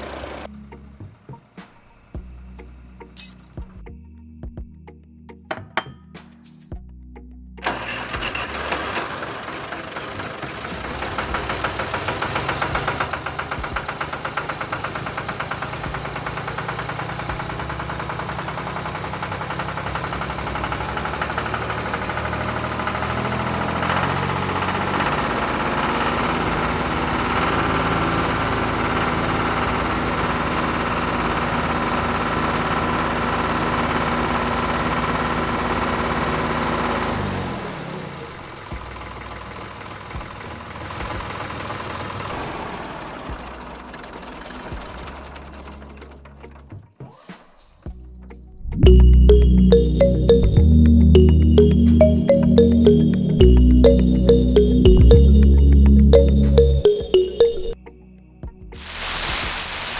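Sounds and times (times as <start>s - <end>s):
tractor engine knocking: 7.6s - 35.9s, 38.4s - 42.5s.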